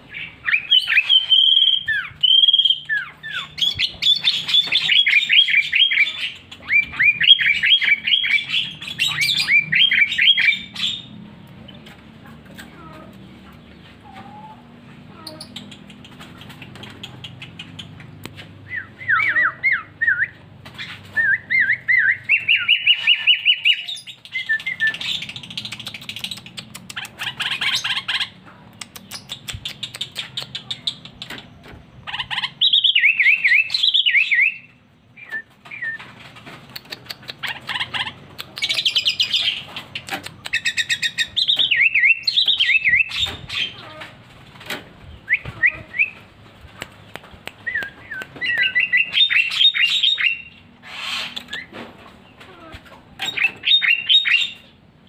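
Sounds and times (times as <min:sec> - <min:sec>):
bird singing warbling phrases: 0:00.0 - 0:36.1, 0:36.7 - 0:44.1, 0:45.1 - 0:46.3, 0:47.0 - 0:54.8.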